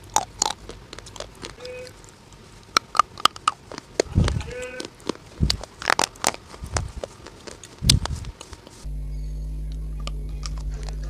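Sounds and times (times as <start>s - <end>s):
chewing with crunches: 0.0s - 8.9s, 9.6s - 11.0s
low electrical hum: 0.0s - 11.0s.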